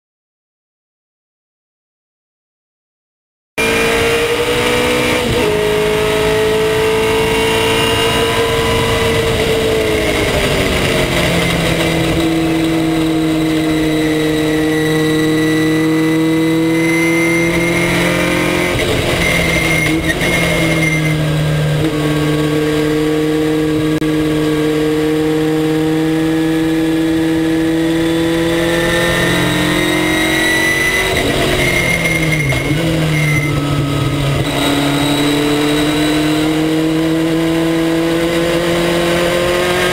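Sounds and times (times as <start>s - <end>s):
race car engine shifting gears: 3.6s - 24.6s, 25.5s - 39.9s.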